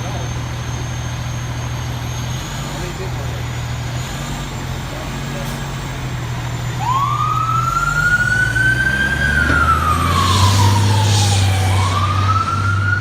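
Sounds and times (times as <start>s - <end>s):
heavy truck engine running: 0.0s - 13.0s
siren wailing: 6.5s - 13.0s.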